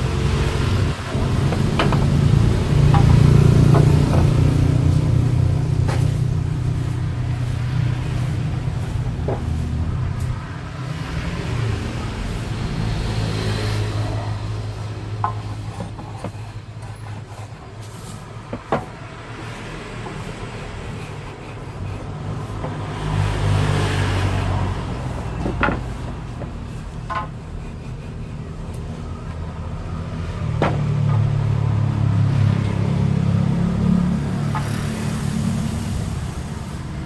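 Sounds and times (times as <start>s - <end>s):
low mechanical rumble: 0.0s - 18.4s
sharp knocks: 0.6s - 7.0s, 30.2s - 31.7s.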